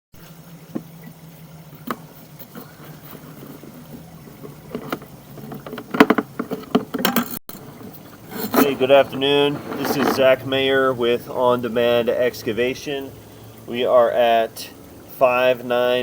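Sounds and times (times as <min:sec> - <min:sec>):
knocks and rattles: 0:01.8 - 0:10.5
low engine hum: 0:07.5 - 0:16.0.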